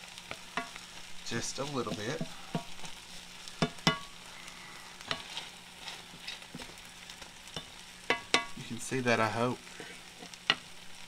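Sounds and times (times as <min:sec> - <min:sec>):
vegetables sizzling in a skillet: 0:00.0 - 0:11.0
wooden spatula stirring: 0:00.2 - 0:04.1, 0:05.0 - 0:08.8
spatula knocking against pan: 0:03.6 - 0:04.1, 0:07.6 - 0:08.6.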